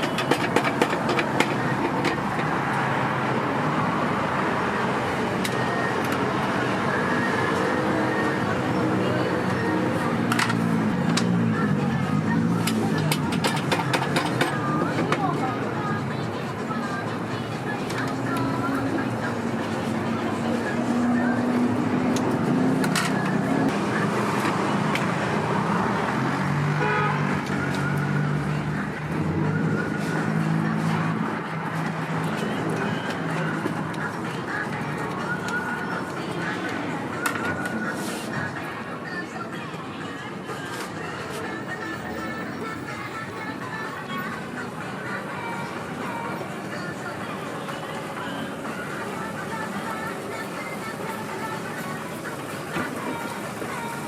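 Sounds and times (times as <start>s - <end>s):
road traffic noise: 0.0s - 54.0s.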